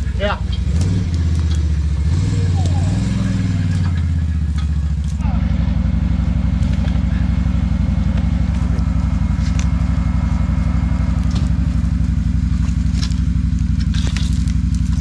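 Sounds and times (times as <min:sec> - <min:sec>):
atv engine idling: 0:00.0 - 0:15.0.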